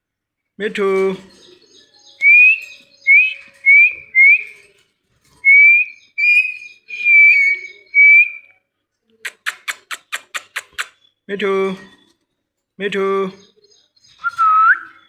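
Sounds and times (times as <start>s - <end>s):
parrot whistling: 5.4s - 8.4s
sharp parrot chirps: 9.2s - 11.2s.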